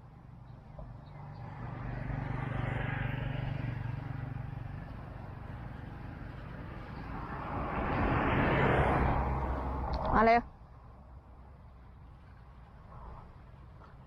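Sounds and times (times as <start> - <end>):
vehicle engine passing by: 0.7 - 10.4.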